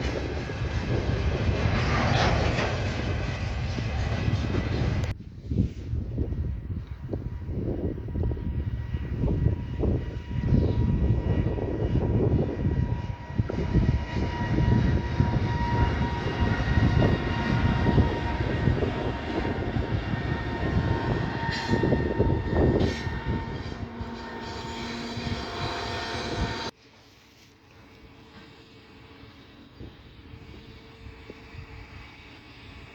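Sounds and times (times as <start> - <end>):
train rumbling past: 0.0 - 26.8
thin steady whine: 7.2 - 32.9.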